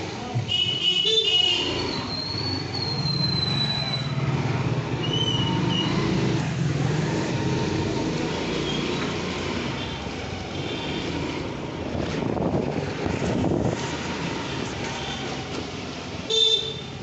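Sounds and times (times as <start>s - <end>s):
road noise: 0.0s - 17.0s
high whistling tone: 2.0s - 4.2s.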